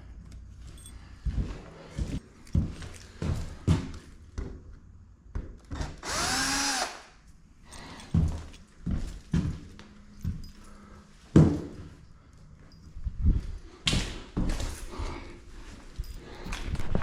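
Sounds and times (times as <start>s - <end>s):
power drill running: 5.8s - 7.2s.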